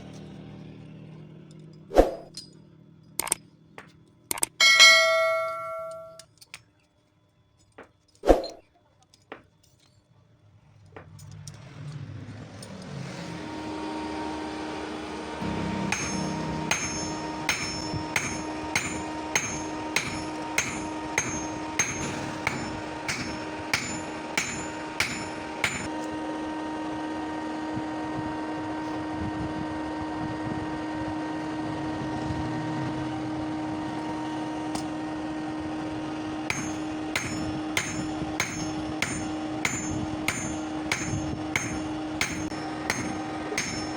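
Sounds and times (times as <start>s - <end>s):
hammer on steel: 4.4s - 6.2s, 15.4s - 25.9s, 36.5s - 43.9s
steady machine hum: 4.4s - 6.2s, 13.4s - 43.9s.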